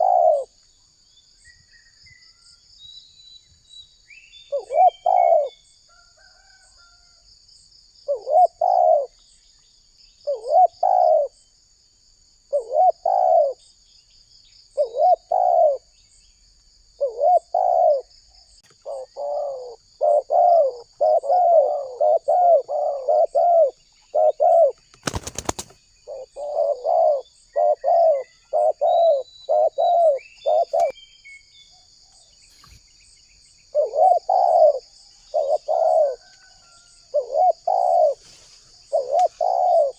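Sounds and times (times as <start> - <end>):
dove cooing: 0.0 - 0.6, 4.5 - 5.6, 8.1 - 9.2, 10.2 - 11.4, 12.5 - 13.6, 14.8 - 15.9, 17.0 - 18.1, 18.8 - 30.9, 33.7 - 39.9.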